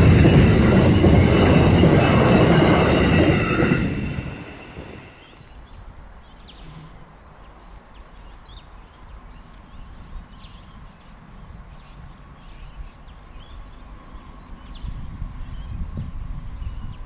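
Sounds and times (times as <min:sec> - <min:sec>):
steady low rumble: 0:00.0 - 0:05.2.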